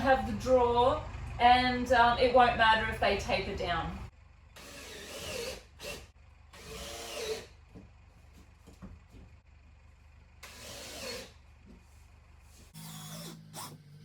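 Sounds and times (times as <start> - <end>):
cordless drill driving screws: 4.6 - 7.6, 10.4 - 11.4, 12.6 - 13.8.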